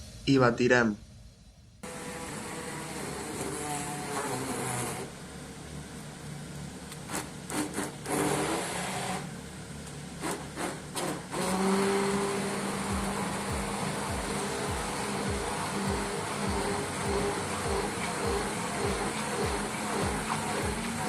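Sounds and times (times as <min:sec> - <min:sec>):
electric blender running: 0:01.8 - 0:05.2, 0:07.0 - 0:09.4, 0:10.2 - 0:21.0.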